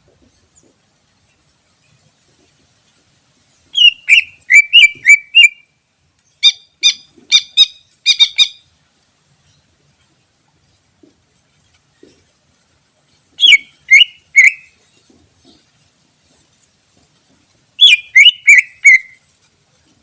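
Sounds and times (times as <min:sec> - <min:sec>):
bird singing whistled notes: 0:03.7 - 0:08.6, 0:13.4 - 0:14.8, 0:17.8 - 0:19.2.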